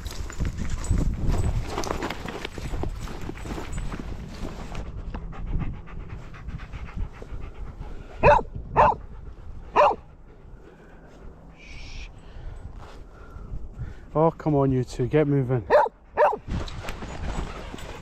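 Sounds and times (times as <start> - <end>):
dog panting: 4.8 - 11.5
dog barking: 8.2 - 9.0, 9.7 - 10.0, 15.7 - 16.4.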